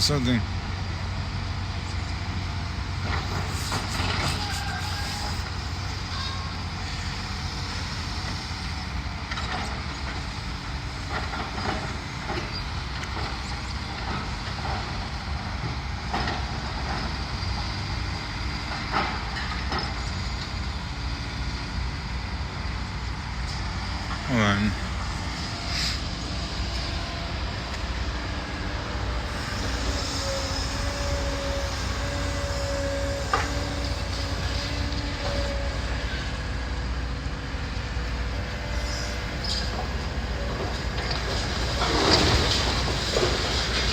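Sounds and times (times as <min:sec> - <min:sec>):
diesel engine rumble: 0:00.0 - 0:43.9
debris and metal clanking: 0:40.6 - 0:43.9.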